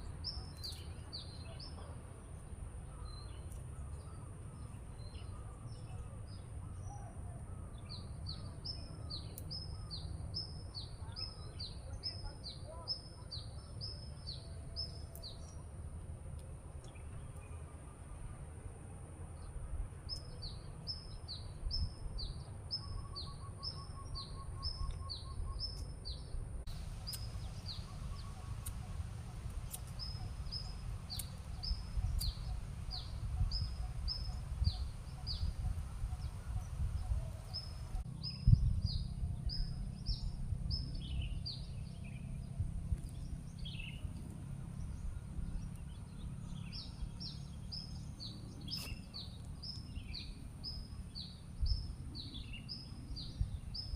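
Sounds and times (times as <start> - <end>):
steady low rumble: 26.4 - 53.9.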